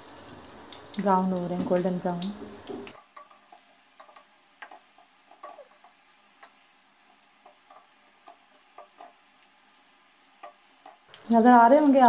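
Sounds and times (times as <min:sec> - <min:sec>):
oil sizzling with small pops: 0:00.0 - 0:12.0
wooden spatula scraping: 0:07.4 - 0:09.4.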